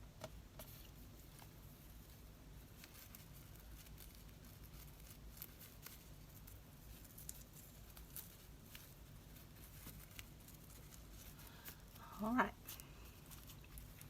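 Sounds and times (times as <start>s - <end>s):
faint taps and paper rustles: 0.1s - 2.2s.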